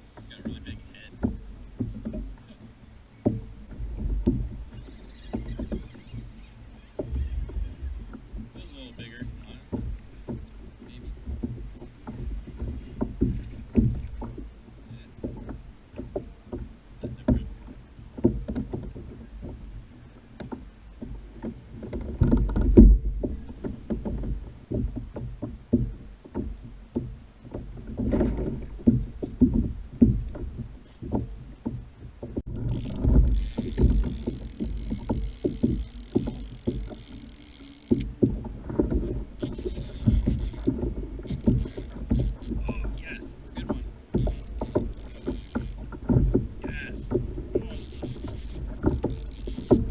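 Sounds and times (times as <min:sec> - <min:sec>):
knocks on plastic kayak hull: 0:03.3 - 0:04.6, 0:11.2 - 0:14.5.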